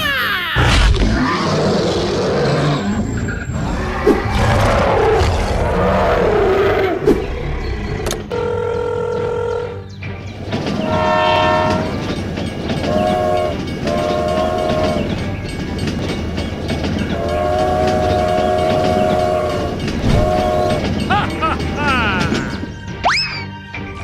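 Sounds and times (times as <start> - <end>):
horn blasts: 10.8 - 12.1, 12.8 - 15.3, 17.1 - 22.7.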